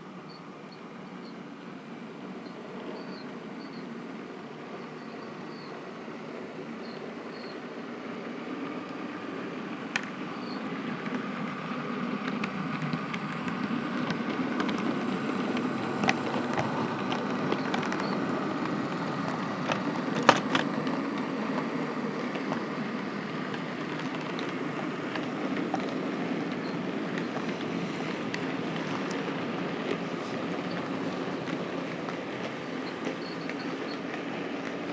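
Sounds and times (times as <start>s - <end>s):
model train motor and wheel hum: 0.0s - 34.9s
wheels clicking over rail joints: 9.8s - 34.9s.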